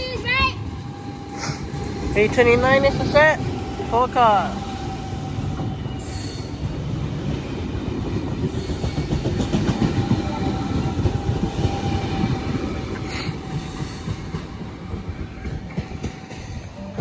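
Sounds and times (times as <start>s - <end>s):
train low rumble: 0.0s - 17.0s
train wheels clattering over rail joints: 4.8s - 17.0s.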